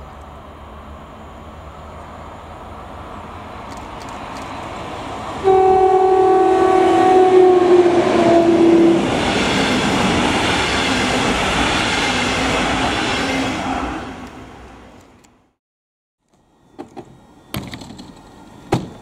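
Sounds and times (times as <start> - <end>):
train coaches rushing past: 0.0 - 15.1
locomotive horn blast: 5.4 - 9.2.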